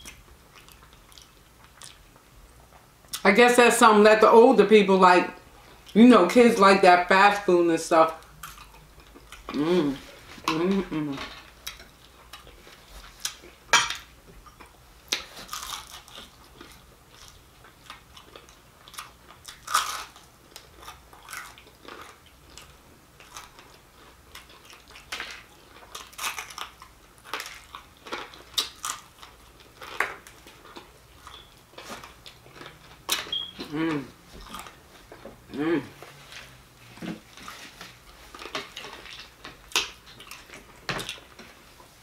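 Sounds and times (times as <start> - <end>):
crunchy chewing: 0.0 - 2.9, 14.4 - 35.6, 37.3 - 41.6.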